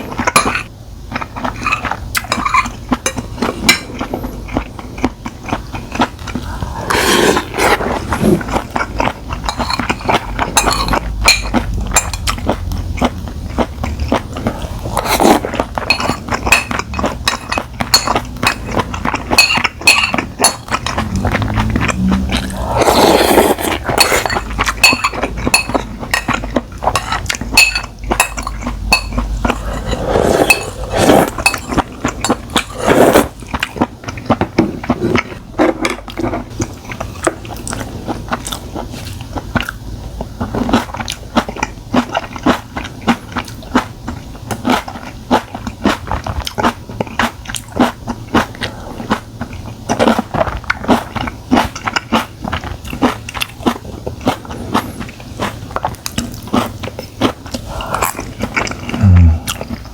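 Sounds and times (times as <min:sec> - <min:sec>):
utensils clinking on dishes: 0:00.1 - 0:00.7, 0:01.4 - 0:04.6, 0:09.0 - 0:12.5, 0:15.0 - 0:32.8
wet chewing: 0:03.4 - 0:59.9.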